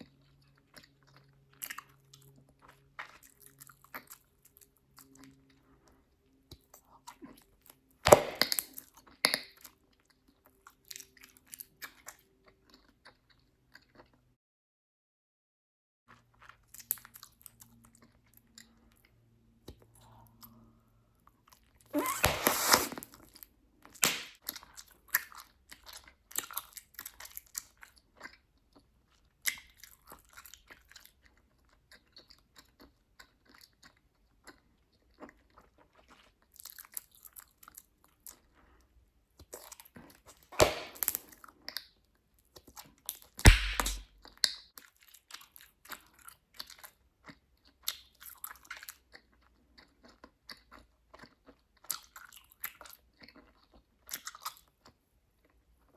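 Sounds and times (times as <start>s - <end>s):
bubblegum bubbles popping: 8.1s - 8.6s, 24.0s - 24.4s, 40.6s - 41.2s, 43.5s - 44.0s
bubblegum chewing: 22.0s - 23.3s, 43.4s - 44.4s.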